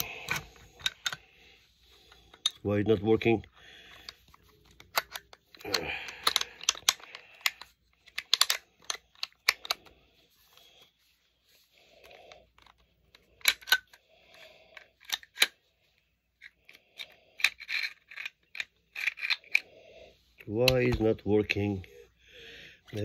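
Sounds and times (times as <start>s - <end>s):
metal parts scraping: 17.0s - 19.6s.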